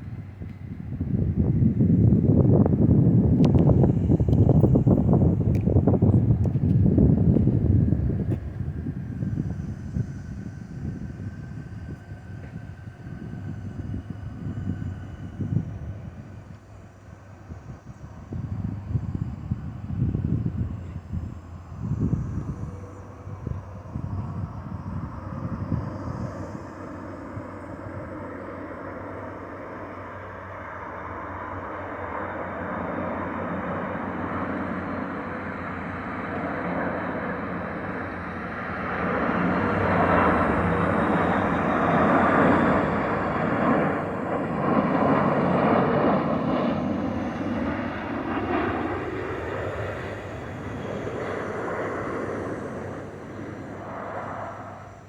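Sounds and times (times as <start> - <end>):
jet airliner passing overhead: 0.0 - 55.0.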